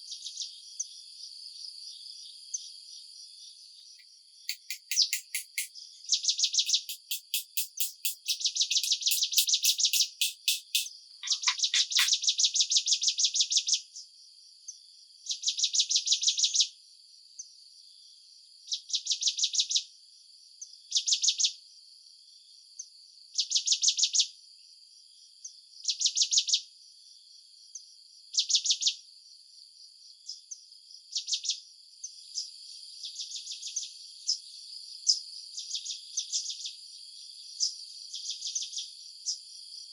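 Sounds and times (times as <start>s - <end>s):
steady high insect hum: 0.2s - 12.2s, 29.2s - 39.9s
insects chirping in bursts: 4.5s - 5.7s, 6.4s - 12.2s.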